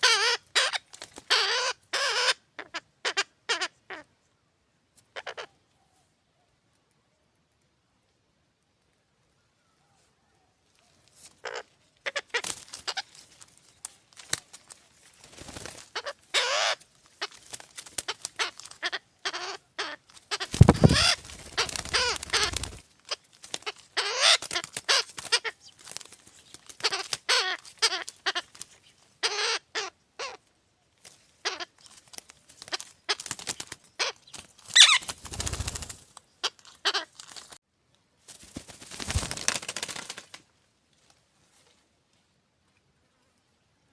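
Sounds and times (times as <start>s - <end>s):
nestling birds squawking: 0.0s - 4.0s, 11.4s - 13.2s, 15.3s - 30.4s, 32.6s - 37.3s.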